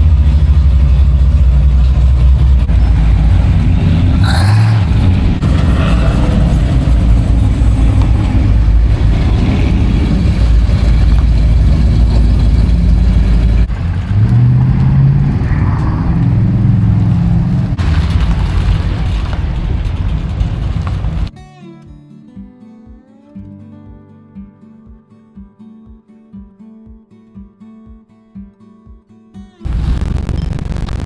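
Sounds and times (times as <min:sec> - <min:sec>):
truck engine rumbling and revving: 0:00.0 - 0:21.3, 0:29.6 - 0:31.0.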